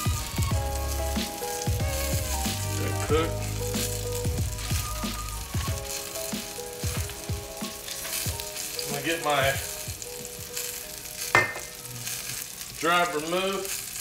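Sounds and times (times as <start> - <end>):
music with deep bass beat: 0.0 - 8.5
chicken sizzling in a skillet: 0.0 - 14.0.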